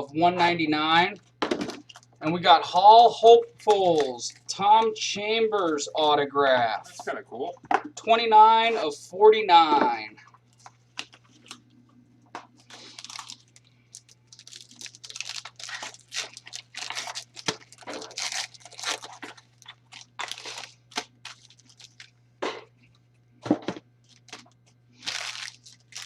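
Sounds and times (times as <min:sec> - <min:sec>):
wrapper tearing and crinkling: 0:01.8 - 0:02.2, 0:12.6 - 0:22.1, 0:24.0 - 0:26.0.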